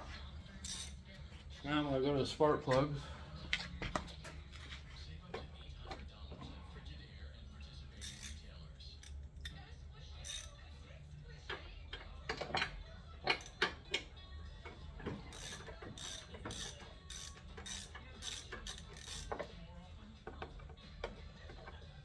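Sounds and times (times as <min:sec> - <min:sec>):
socket ratchet clicking: 0:15.3 - 0:19.6.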